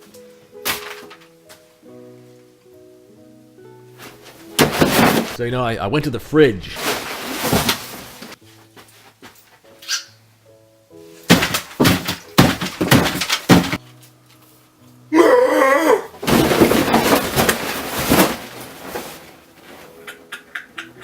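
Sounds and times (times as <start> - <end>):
loud crashes and bangs: 4.6 - 5.4, 11.3 - 13.8, 16.2 - 18.8.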